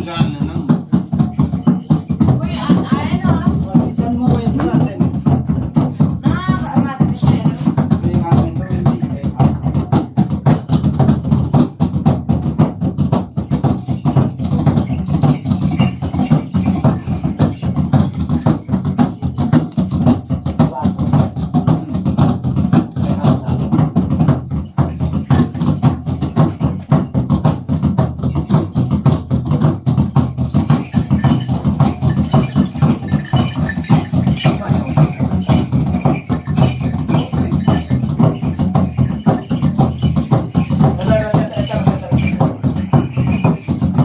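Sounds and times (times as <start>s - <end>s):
fast sharp percussion strokes: 0.0s - 44.0s
low drum beat: 0.0s - 44.0s
person's voice: 41.0s - 42.4s.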